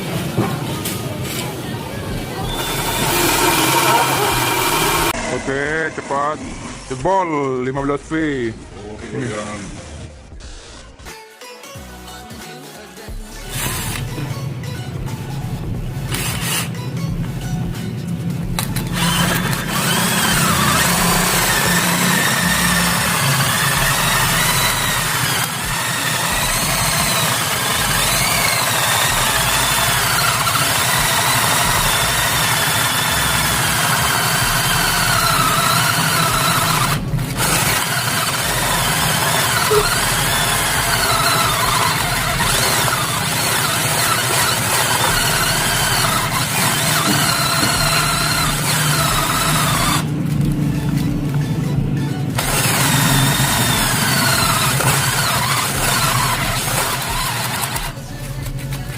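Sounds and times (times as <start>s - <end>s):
cordless drill whining under load: 2.4s - 5.2s, 18.6s - 50.0s, 52.4s - 58.0s.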